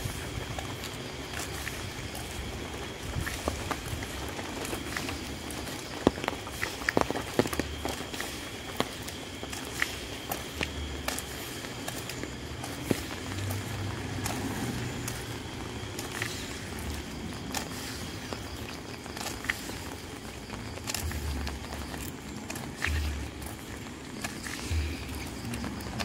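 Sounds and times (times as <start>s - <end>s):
sharp taps of raindrops: 0.0s - 26.0s
steady rain falling: 0.0s - 26.0s
dull low thuds: 24.6s - 26.0s.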